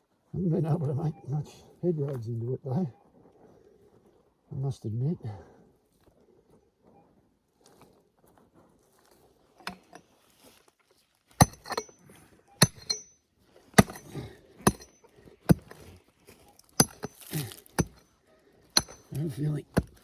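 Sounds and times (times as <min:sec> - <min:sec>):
digging tool striking clay and stones: 0:09.6 - 0:10.0, 0:11.4 - 0:16.0, 0:16.7 - 0:18.1, 0:18.7 - 0:20.0
metallic clink: 0:11.4 - 0:12.0, 0:12.6 - 0:13.2, 0:18.8 - 0:19.2.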